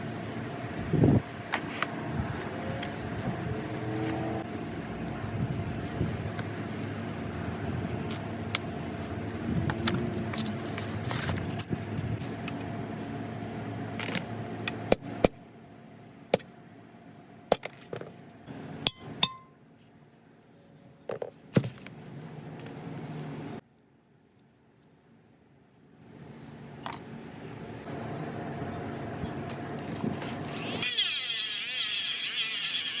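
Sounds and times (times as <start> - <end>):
small electric motor running: 29.8 - 33.0.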